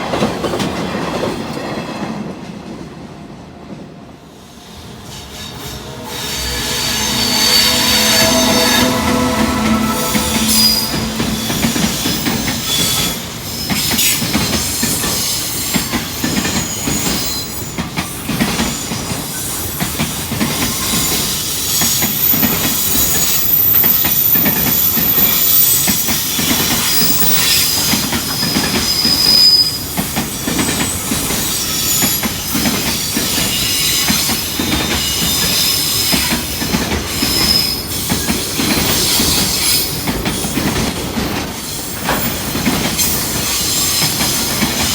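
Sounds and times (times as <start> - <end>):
wheels squealing on rail: 4.3 - 44.9
train wheels clattering over rail joints: 26.4 - 44.9.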